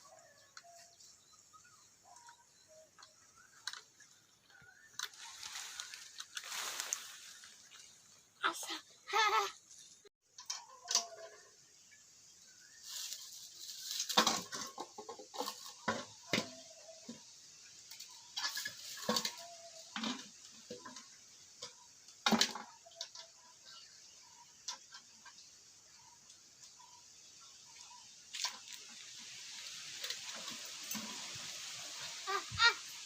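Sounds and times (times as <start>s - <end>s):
dishes and pots clattering: 14.1s - 16.6s.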